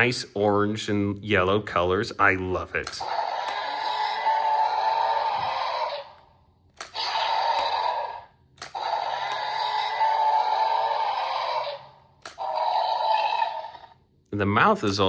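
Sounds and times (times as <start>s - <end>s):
toy electronic roar: 2.8s - 14.1s.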